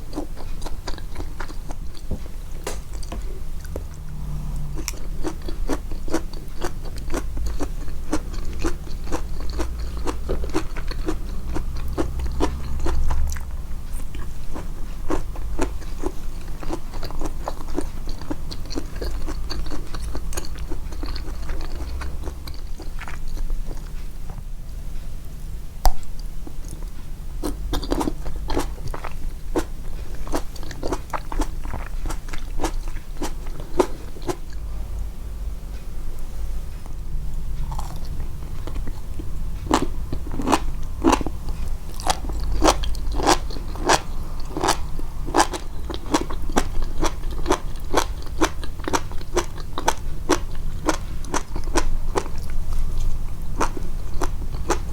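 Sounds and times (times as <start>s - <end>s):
chewing crunchy food: 0.0s - 24.1s, 25.8s - 34.7s, 36.7s - 54.9s.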